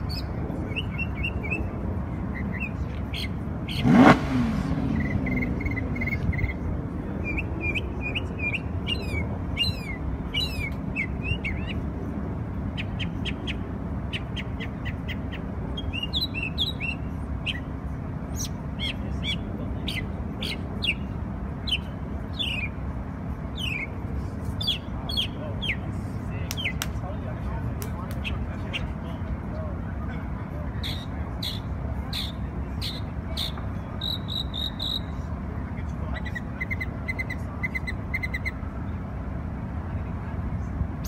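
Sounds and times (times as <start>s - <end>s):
traffic rumble: 0.0s - 41.0s
car engine revving: 3.7s - 6.0s
songbird chirping and whistling: 31.0s - 35.1s.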